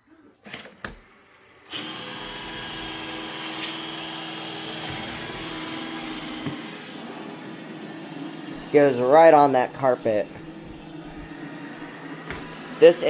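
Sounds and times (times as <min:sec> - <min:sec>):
robot vacuum motor whining: 0:01.7 - 0:08.8.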